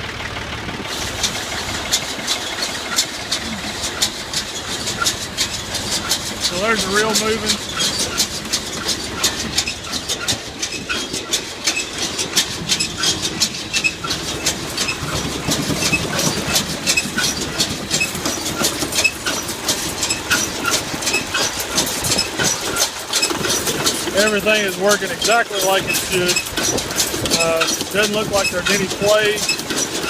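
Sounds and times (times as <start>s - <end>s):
tractor engine humming: 0.0s - 30.0s
baler chains clattering: 0.3s - 30.0s.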